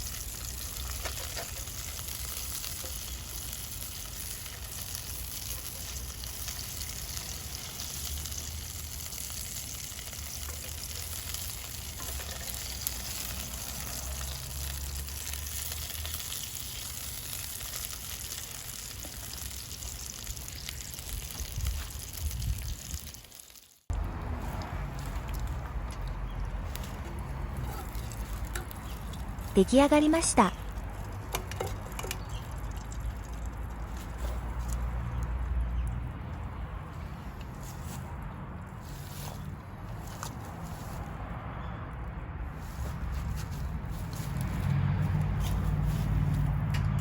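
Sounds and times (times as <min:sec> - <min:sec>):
food sizzling in a pan: 0:00.0 - 0:23.9.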